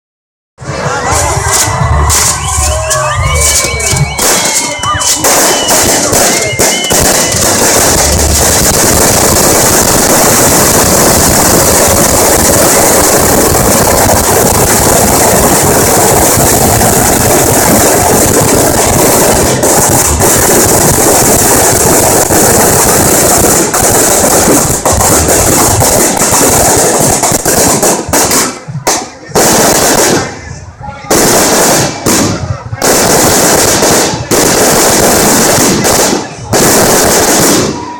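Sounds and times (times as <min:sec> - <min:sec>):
firecrackers popping and crackling: 0:00.6 - 0:37.9
brief whistle-like tones: 0:01.5 - 0:07.5.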